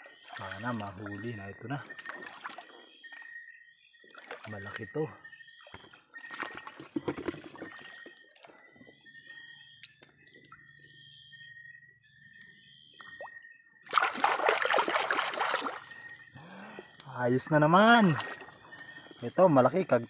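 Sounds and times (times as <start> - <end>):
water trickling: 0.0 - 3.3, 4.1 - 8.9, 13.0 - 20.0
hand splashing in water: 13.9 - 15.9.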